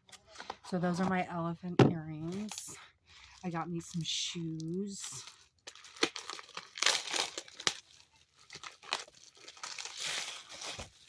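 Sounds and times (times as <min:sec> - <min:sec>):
packaging crinkling and rustling: 0:04.6 - 0:11.0.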